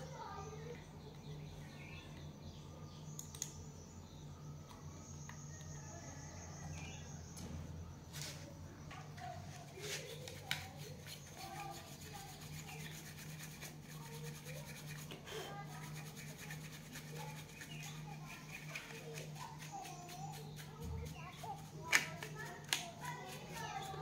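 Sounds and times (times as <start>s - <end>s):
faint chirps: 0.0s - 13.0s
small clicks: 3.1s - 3.6s
light rubbing and scraping: 9.2s - 24.0s.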